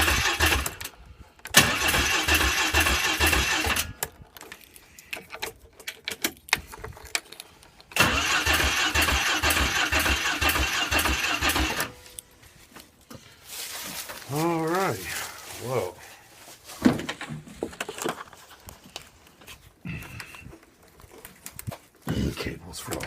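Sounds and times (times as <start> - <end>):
starter cranking engine: 0.0 - 4.2, 7.9 - 12.2.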